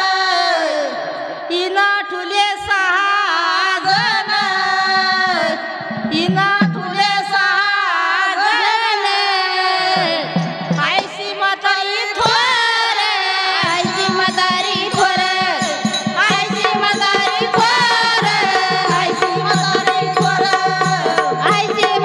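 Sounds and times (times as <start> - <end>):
devotional singing: 0.0 - 22.0
hand drum rhythm: 13.6 - 22.0.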